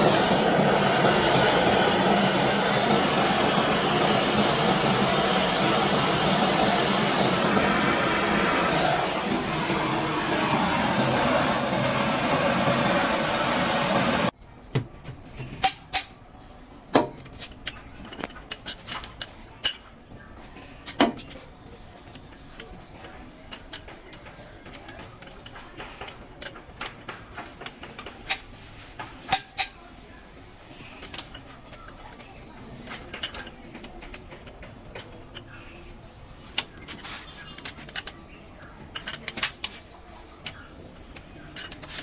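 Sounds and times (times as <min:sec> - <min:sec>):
loud steady rushing noise: 0:00.0 - 0:14.4
metallic clinks and knocks: 0:17.0 - 0:19.9.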